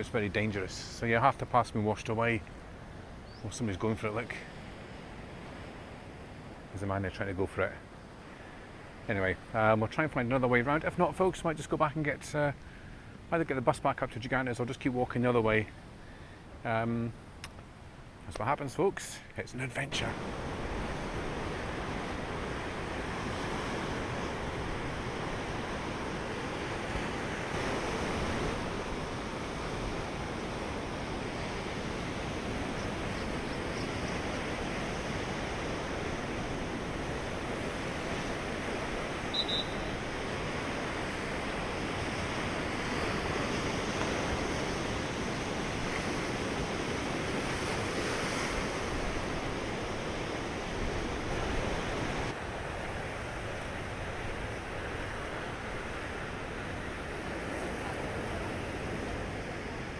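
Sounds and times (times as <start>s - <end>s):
heavy surf breaking: 19.1s - 59.9s
short high chirp: 39.3s - 40.0s.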